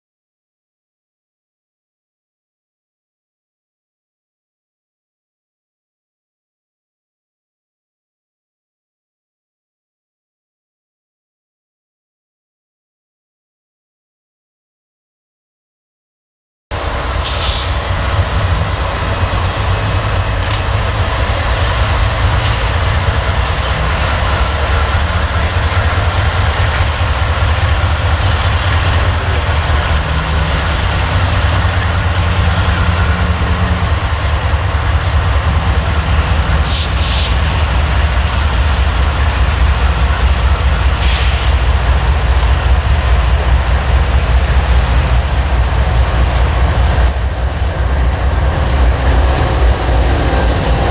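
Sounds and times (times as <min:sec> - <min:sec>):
train wheels rumbling on rails: 0:16.7 - 0:50.9.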